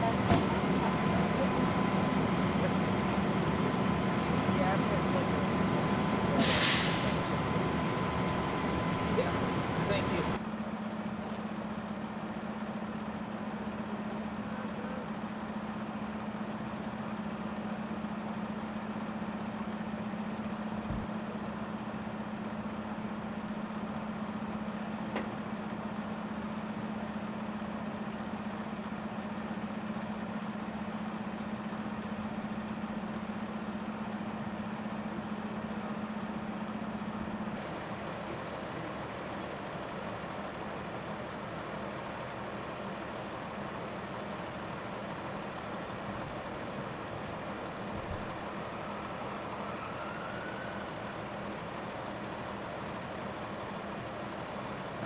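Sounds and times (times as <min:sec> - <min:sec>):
vehicle engine idling: 0:00.0 - 0:10.5.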